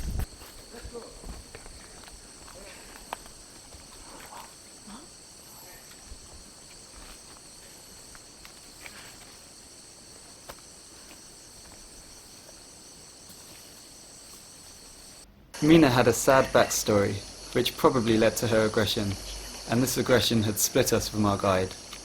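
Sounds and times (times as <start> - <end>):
faint ticks and rustles: 0.0 - 22.0
high-pitched insect chorus: 0.0 - 22.0.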